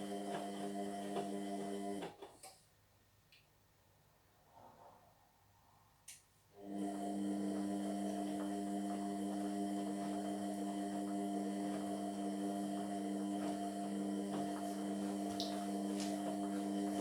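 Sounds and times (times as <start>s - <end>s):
electrical hum with tones: 0.0s - 2.1s, 6.6s - 17.0s.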